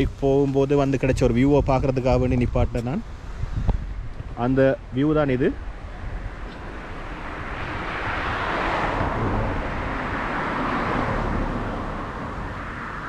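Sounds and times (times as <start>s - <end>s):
vehicle passing: 5.5s - 13.0s.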